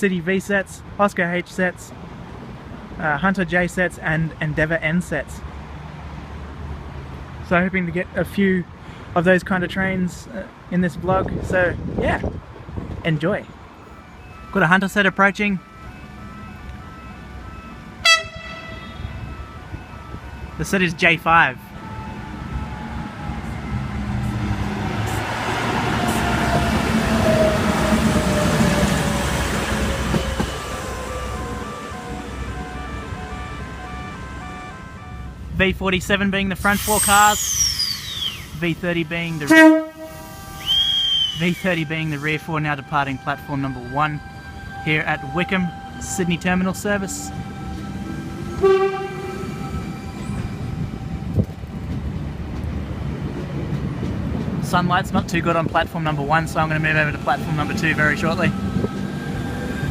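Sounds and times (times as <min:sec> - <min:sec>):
passenger train passing: 0:10.6 - 0:59.9
short pitched tone: 0:13.8 - 0:20.8, 0:30.2 - 0:35.4, 0:39.3 - 0:51.3.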